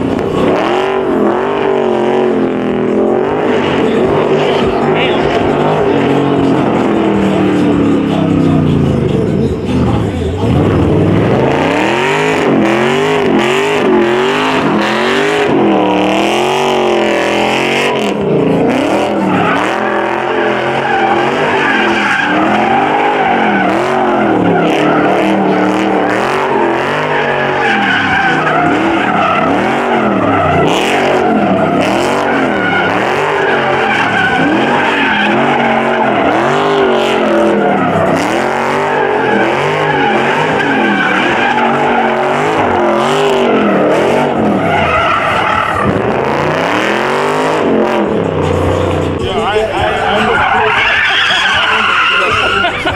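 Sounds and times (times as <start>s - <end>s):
car engine revving: 0.0s - 52.9s
tyres squealing and skidding: 0.0s - 52.9s.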